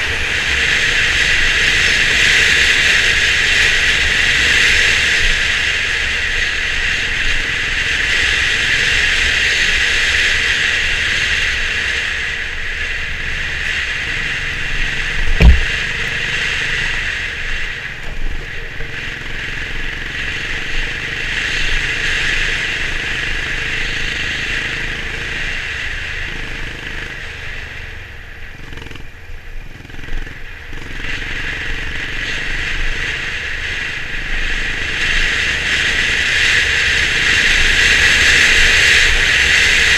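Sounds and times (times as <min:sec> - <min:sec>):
motorcycle engine running: 0:00.0 - 0:39.9
wind and road noise: 0:00.0 - 0:39.9
sharp thump: 0:15.2 - 0:16.2.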